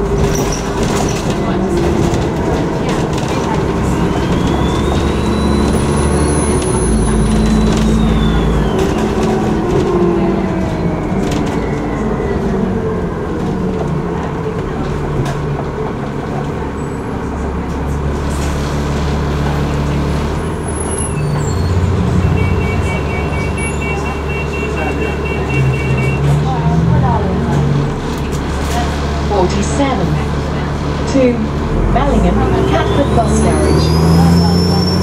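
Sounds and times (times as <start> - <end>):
bus engine running: 0.0 - 35.0
turbocharger whistle: 4.2 - 9.2, 21.1 - 26.2.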